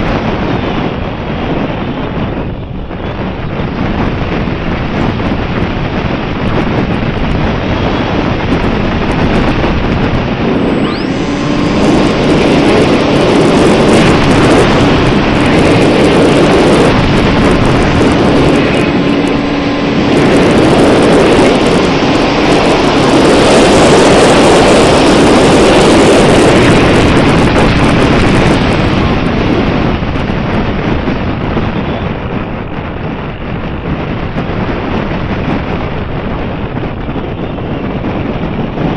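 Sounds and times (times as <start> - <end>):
wind buffeting microphone: 0.0 - 38.9
faint steady hum: 6.8 - 29.4.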